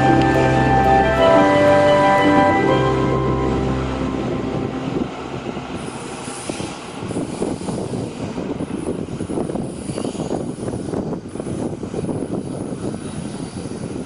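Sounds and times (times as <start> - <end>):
music: 0.0 - 5.8.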